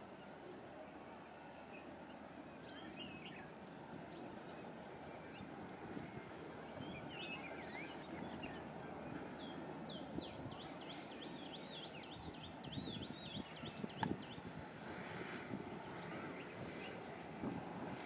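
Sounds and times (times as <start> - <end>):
low outdoor background noise: 0.0 - 18.0
small birds chirping: 6.8 - 14.5.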